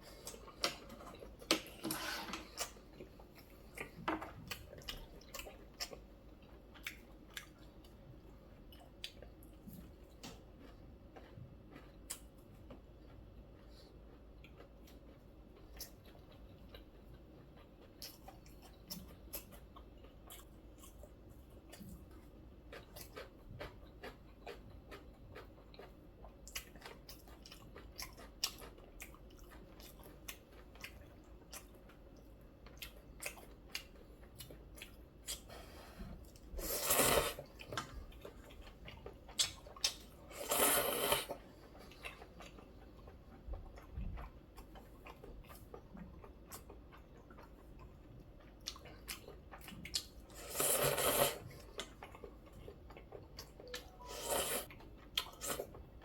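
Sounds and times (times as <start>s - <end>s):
chewing with wet mouth clicks: 2.6s - 35.5s, 37.4s - 54.0s, 54.6s - 56.0s
loud slurps of soup: 36.6s - 37.4s, 40.3s - 41.3s, 50.4s - 51.5s, 54.0s - 54.7s.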